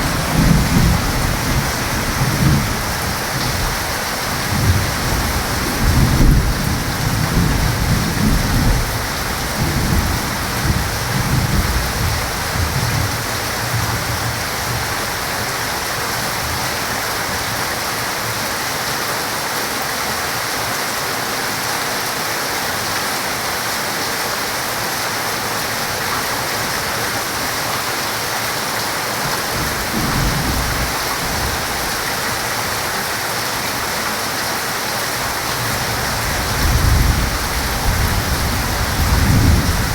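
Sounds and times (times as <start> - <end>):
thunder rumbling: 0.0 - 16.6, 29.2 - 33.1, 35.2 - 39.9
heavy rain: 0.0 - 39.9.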